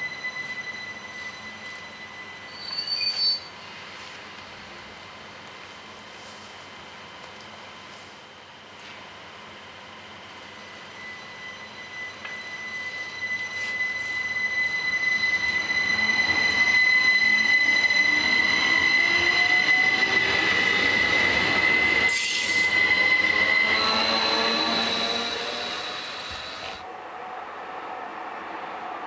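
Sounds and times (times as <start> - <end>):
high-pitched wheel squeal: 0.0 - 3.5, 11.0 - 26.8
train running past: 9.6 - 29.0.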